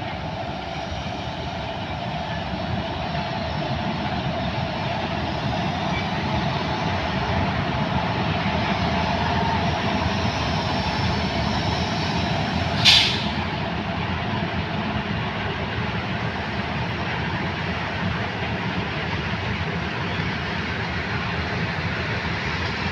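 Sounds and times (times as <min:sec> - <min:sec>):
train rumbling on track: 0:00.0 - 0:22.9
short sharp hiss: 0:12.8 - 0:13.4.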